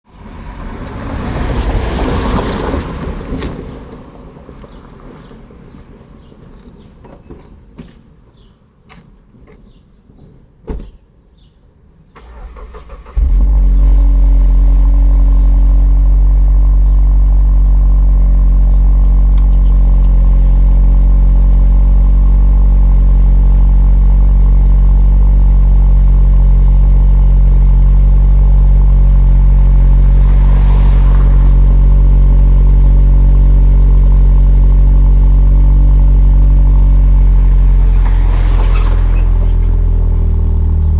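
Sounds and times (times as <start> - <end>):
thump: 10.2 - 11.0
car engine idling: 12.2 - 40.9.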